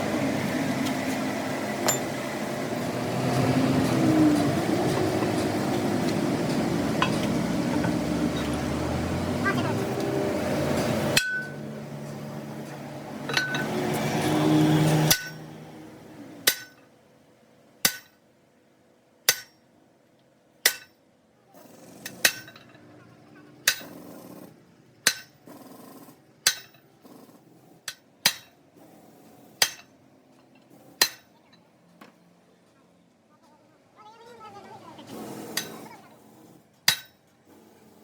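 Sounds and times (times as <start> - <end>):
hammer striking metal: 1.8 - 2.2, 11.1 - 11.7, 13.3 - 13.8, 15.0 - 15.5, 16.4 - 16.8, 17.8 - 18.2, 19.3 - 19.6, 20.6 - 21.0, 22.0 - 22.8, 23.6 - 24.0, 25.0 - 25.4, 26.4 - 26.8, 27.9 - 28.6, 29.6 - 29.9, 31.0 - 31.3, 35.6 - 35.8, 36.9 - 37.2.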